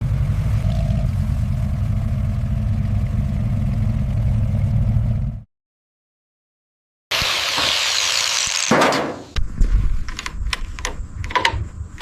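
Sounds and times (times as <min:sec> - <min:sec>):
car engine idling: 0:00.0 - 0:05.4.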